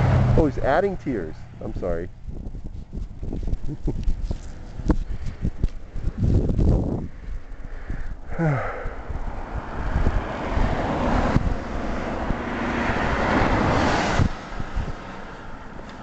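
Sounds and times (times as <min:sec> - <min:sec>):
vehicle engine passing by: 0:00.0 - 0:01.7, 0:09.3 - 0:16.0
traffic passing on highway: 0:00.0 - 0:16.0.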